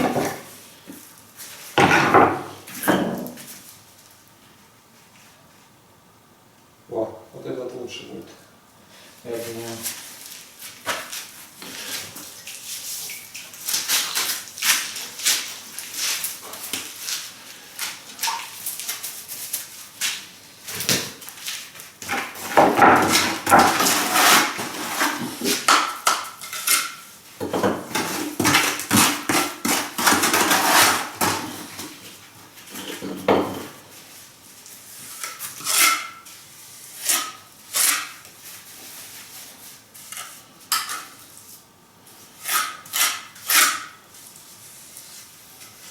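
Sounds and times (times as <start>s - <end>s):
trowel scraping mortar: 22.1s - 25.7s, 28.0s - 31.7s.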